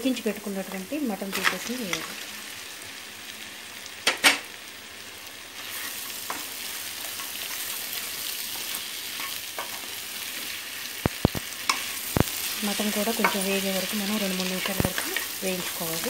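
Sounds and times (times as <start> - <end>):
meat sizzling in a pan: 0.0 - 16.0
stirring in a pan: 5.6 - 16.0.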